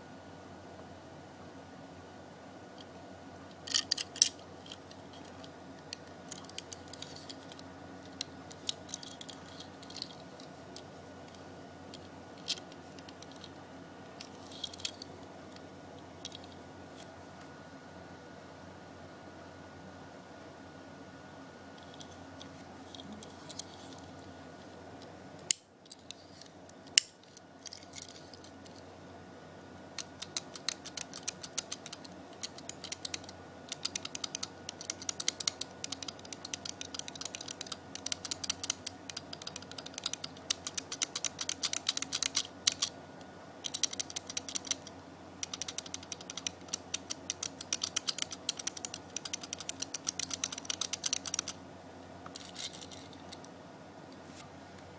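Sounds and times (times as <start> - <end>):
toy car wheels rattling: 6.3 - 10.5, 30.0 - 42.9, 43.6 - 51.6, 52.3 - 53.4
sharp clicks: 30.0 - 42.9, 43.6 - 51.6.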